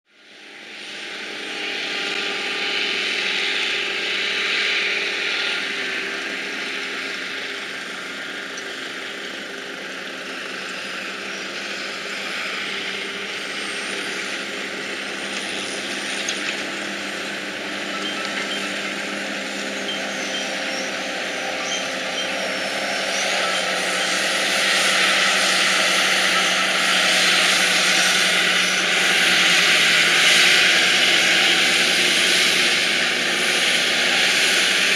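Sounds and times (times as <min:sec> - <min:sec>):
diesel farm machinery running: 0:00.2 - 0:34.9.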